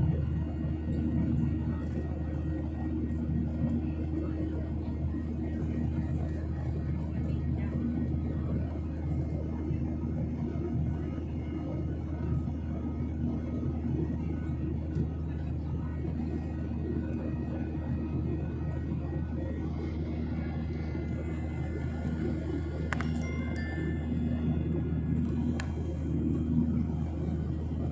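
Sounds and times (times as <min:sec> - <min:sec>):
airliner engines rumbling: 0:00.0 - 0:27.9
high ringing tones: 0:23.0 - 0:25.6.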